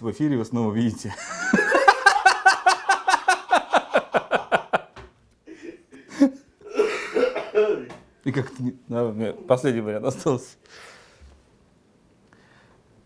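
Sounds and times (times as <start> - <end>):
person laughing: 1.2 - 7.8.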